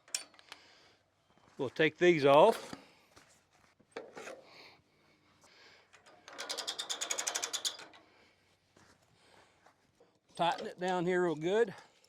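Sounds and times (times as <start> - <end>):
metal ratchet clicking: 6.0 - 8.0.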